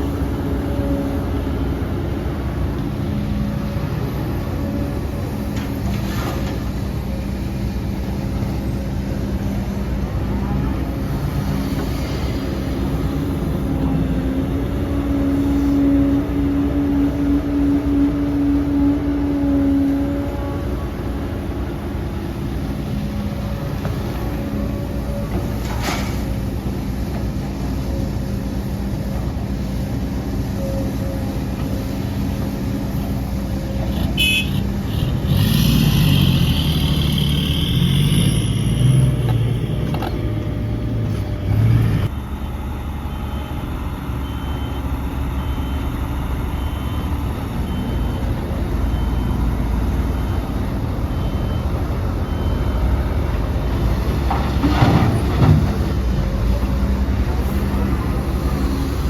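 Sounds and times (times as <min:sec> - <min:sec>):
heavy diesel machinery engines: 0:00.0 - 0:59.0
reversing alarm beeping: 0:42.1 - 0:53.7.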